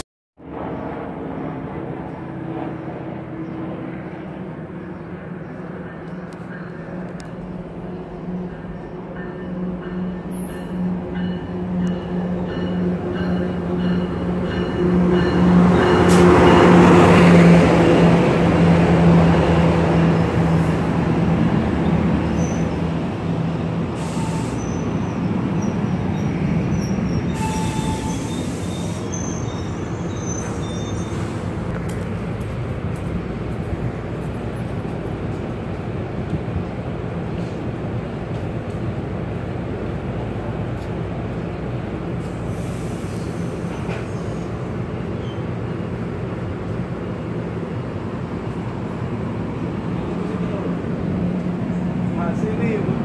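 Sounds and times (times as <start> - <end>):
commuter train rolling in: 0.0 - 53.0
high wheel squeals: 22.2 - 22.8, 24.0 - 31.6.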